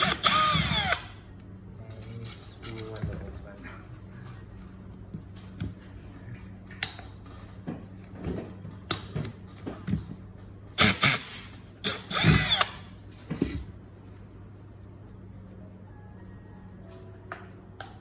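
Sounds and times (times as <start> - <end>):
tools and metal parts clicking: 1.9 - 3.2
electric power tool bursts: 10.8 - 12.8.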